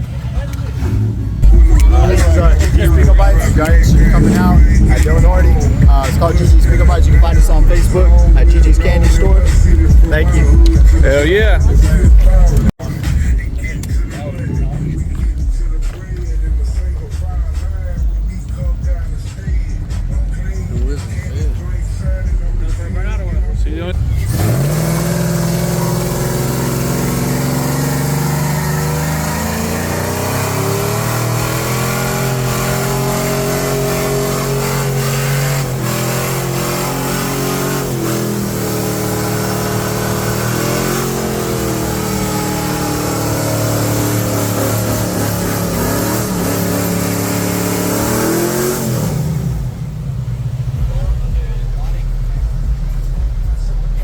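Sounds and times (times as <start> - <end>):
vehicle engine revving: 0.0 - 54.0.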